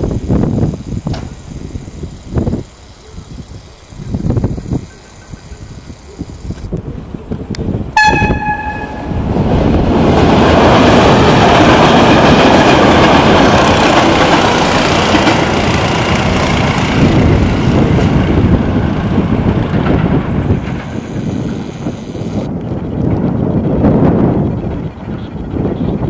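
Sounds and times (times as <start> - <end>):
train running past: 0.0 - 25.8
locomotive horn: 8.0 - 9.3.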